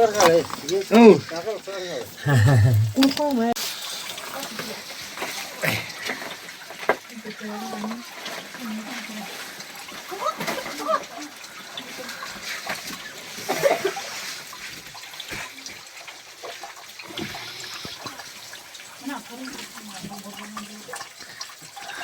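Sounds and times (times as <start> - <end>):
voices calling out: 0.0 - 3.6.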